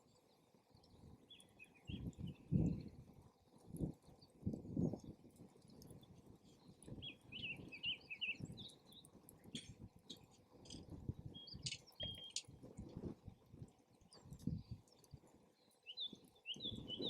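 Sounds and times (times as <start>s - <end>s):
wind rumbling on microphone: 0.8s - 15.4s, 16.0s - 17.0s
small bird chirping: 1.3s - 2.7s, 6.4s - 12.5s, 14.1s - 17.0s.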